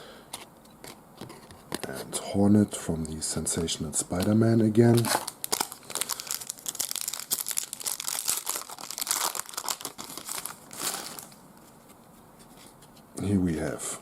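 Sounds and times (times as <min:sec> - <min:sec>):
wrapper tearing and crinkling: 0:04.9 - 0:11.4.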